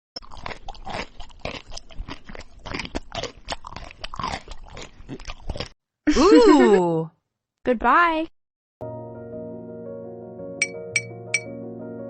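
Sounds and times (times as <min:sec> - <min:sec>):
crunchy food being chewed: 0:00.2 - 0:05.8.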